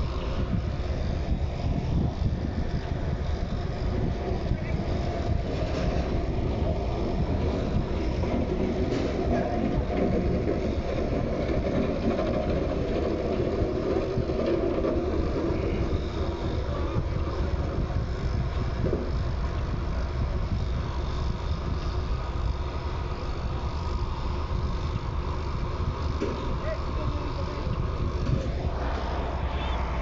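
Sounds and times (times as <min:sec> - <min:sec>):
vehicle low rumble: 0:00.0 - 0:30.0.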